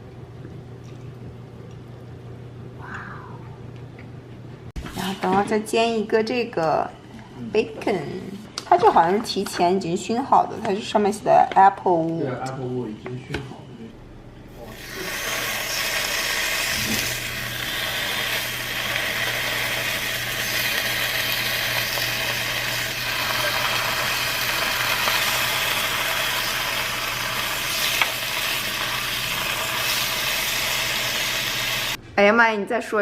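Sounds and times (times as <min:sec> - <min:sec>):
low machine hum: 0:00.0 - 0:33.0
bacon sizzling in a frying pan: 0:14.7 - 0:32.0.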